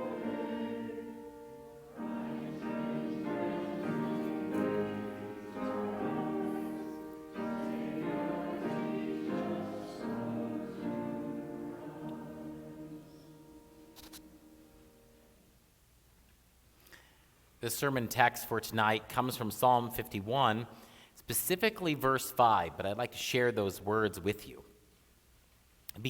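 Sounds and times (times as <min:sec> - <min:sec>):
voices singing a hymn: 0:00.0 - 0:14.5
instrumental accompaniment: 0:00.0 - 0:14.6.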